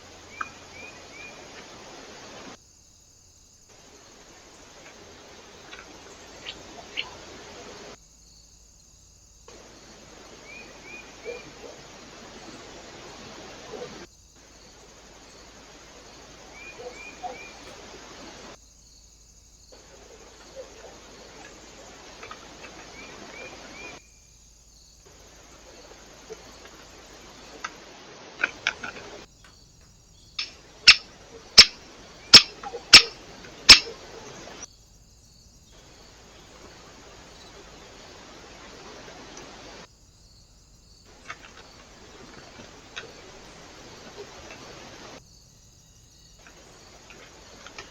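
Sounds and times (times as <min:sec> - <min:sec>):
microphone hiss: 0:00.0 - 0:47.9
small bird chirps: 0:05.6 - 0:08.0, 0:29.4 - 0:34.7
soft ticks: 0:28.4 - 0:34.0
loud sharp taps: 0:32.4 - 0:33.9.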